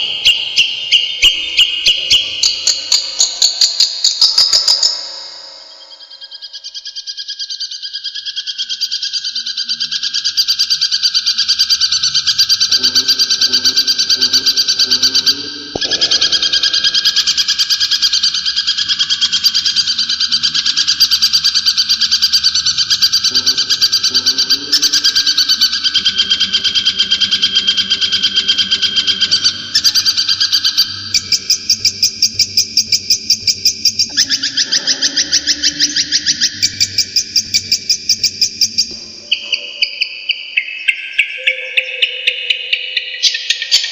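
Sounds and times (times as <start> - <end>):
bird chattering song: 0.0 - 43.9
bird repeated notes: 12.3 - 43.9.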